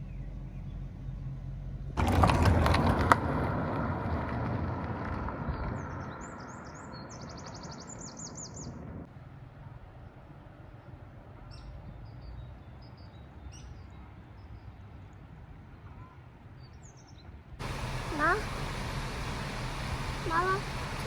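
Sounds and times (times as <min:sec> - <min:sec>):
small bird chirping: 0:05.5 - 0:08.8.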